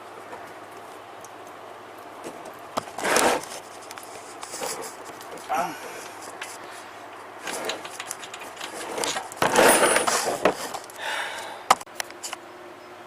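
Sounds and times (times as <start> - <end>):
rubbing and scraping of handled objects: 2.2 - 11.0
scraping rustle: 2.2 - 11.0
clicks and knocks: 7.4 - 10.9.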